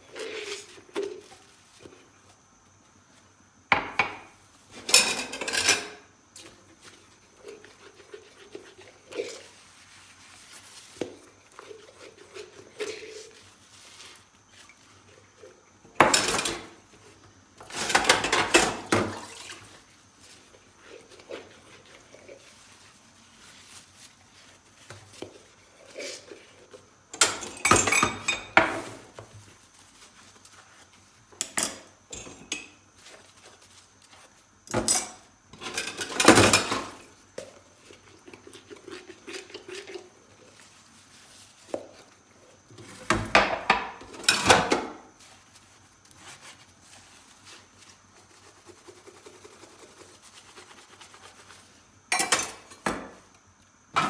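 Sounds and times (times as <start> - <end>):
dishes and cutlery clattering: 4.8 - 6.0, 27.2 - 28.9, 31.4 - 32.8, 34.7 - 37.0, 52.1 - 53.1.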